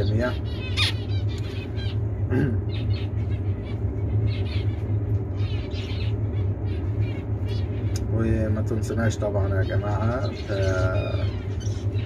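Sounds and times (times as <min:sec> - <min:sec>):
finches chirping: 0:00.0 - 0:12.0
steady low hum: 0:00.0 - 0:12.0.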